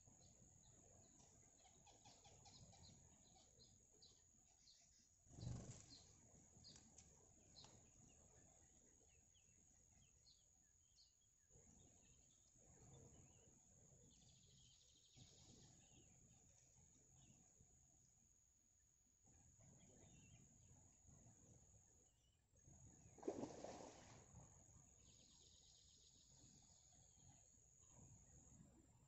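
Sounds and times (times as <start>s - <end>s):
small birds chirping: 0.2s - 17.5s.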